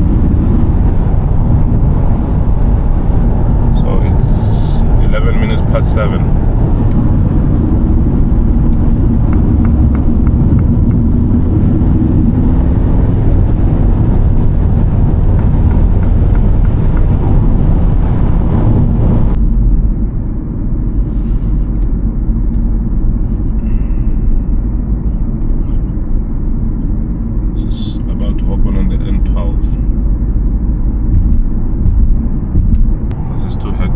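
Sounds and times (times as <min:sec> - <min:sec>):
car road and engine rumble: 0:00.0 - 0:33.9.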